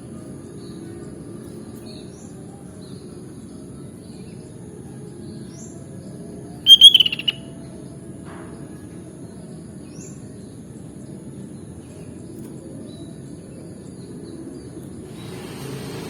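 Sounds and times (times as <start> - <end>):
faint high bird chirps: 6.7 - 7.4
low background hiss: 6.7 - 7.4.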